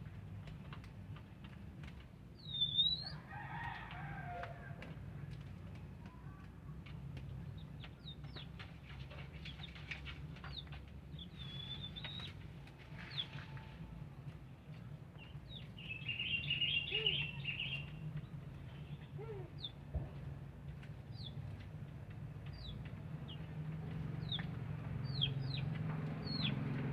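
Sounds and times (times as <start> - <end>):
small birds chirping: 9.4 - 12.4, 15.2 - 19.8, 22.5 - 26.7.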